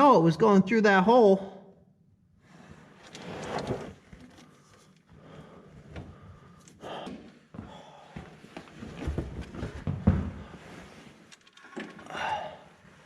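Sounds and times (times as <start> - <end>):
hose rustling and scraping: 2.5 - 5.0.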